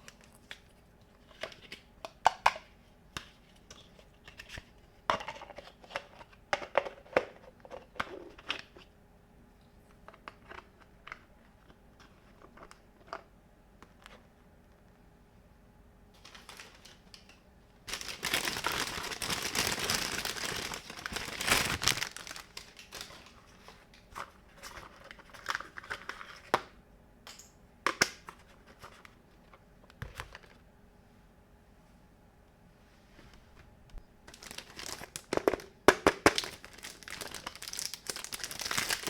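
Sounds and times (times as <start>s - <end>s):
plastic packaging crinkling: 16.2s - 26.5s, 34.3s - 39.0s.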